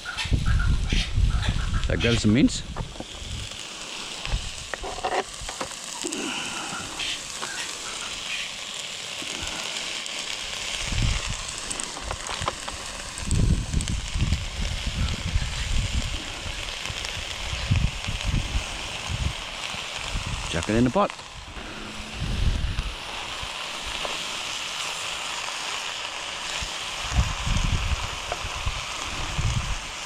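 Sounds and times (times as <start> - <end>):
vegetables sizzling in oil: 0.0 - 30.0
low rumbling: 10.8 - 24.6.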